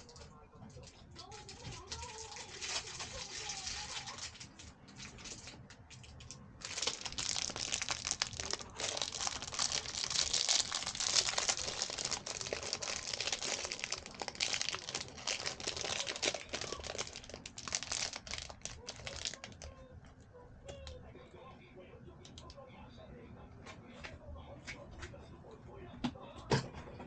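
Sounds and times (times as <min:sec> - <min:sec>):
packaging crinkling: 0:01.2 - 0:19.8.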